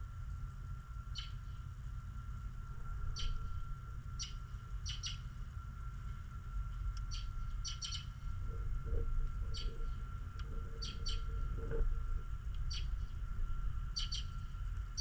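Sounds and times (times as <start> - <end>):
steady low rumble: 0.0 - 15.0
small birds chirping: 1.1 - 1.6, 3.1 - 3.5, 4.2 - 5.3, 7.0 - 8.3, 9.4 - 11.8, 12.7 - 13.2, 13.9 - 15.0.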